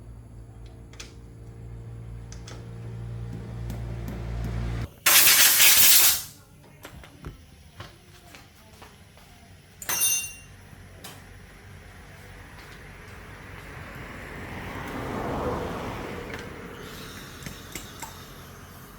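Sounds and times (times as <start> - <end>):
loud hiss: 4.9 - 6.3.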